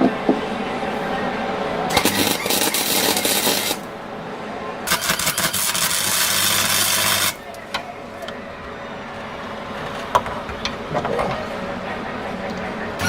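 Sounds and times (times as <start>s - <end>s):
welder humming: 0.8s - 13.0s
welding arc crackling: 1.9s - 4.0s, 4.9s - 7.6s.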